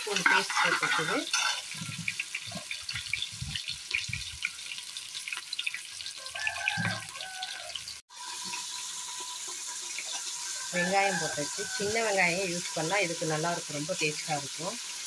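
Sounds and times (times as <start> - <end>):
ladle scraping pot: 0.0 - 3.6
paste sizzling in oil: 0.0 - 15.0.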